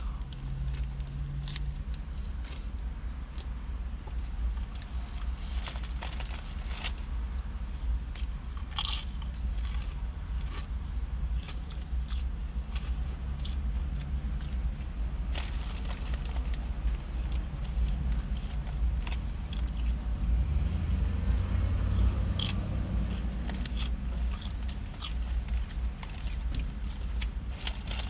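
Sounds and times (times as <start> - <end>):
chewing and crunching food: 0.0 - 28.0.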